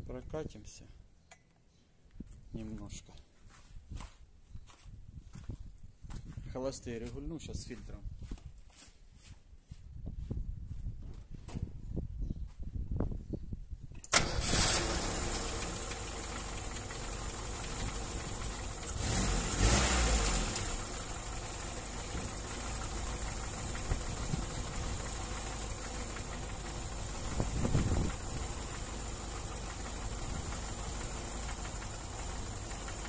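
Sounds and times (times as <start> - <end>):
car engine starting and idling: 14.0 - 33.0.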